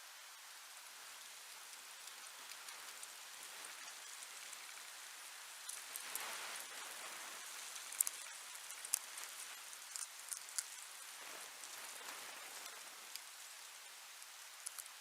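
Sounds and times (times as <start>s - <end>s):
steady hiss: 0.0s - 15.0s
pet nibbling clicks: 7.8s - 10.8s, 14.6s - 15.0s.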